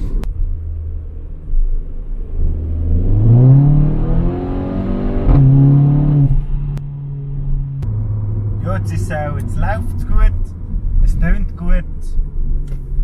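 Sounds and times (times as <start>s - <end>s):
car exhaust accelerating: 0.0s - 13.0s.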